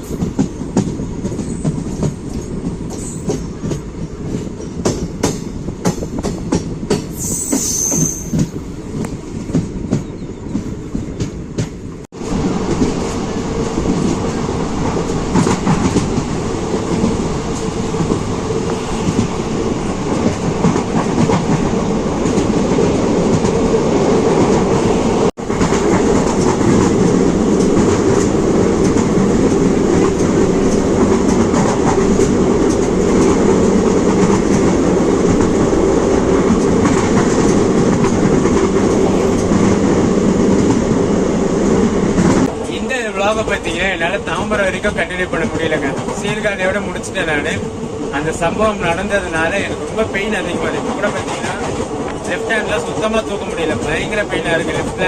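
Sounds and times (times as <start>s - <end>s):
train wheels clattering: 0.0s - 11.9s
train rumble: 0.0s - 55.0s
high squeal: 7.1s - 8.6s.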